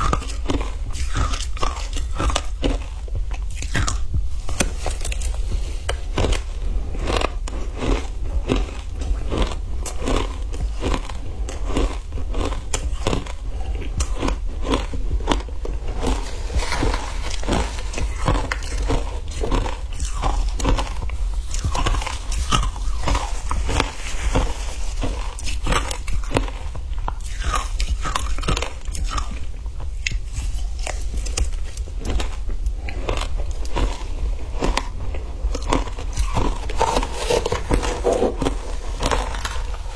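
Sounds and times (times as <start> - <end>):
low hum: 0.0 - 28.5
crunching and chewing ice: 0.0 - 39.9.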